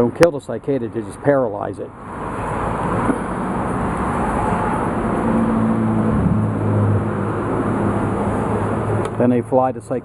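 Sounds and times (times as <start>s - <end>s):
vehicle rumble: 0.0s - 10.0s
low engine hum: 2.0s - 9.8s.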